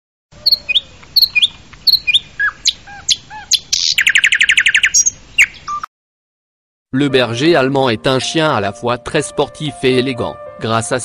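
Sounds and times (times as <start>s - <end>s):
bird trill: 0.4s - 5.9s
birds chirping: 0.4s - 5.9s.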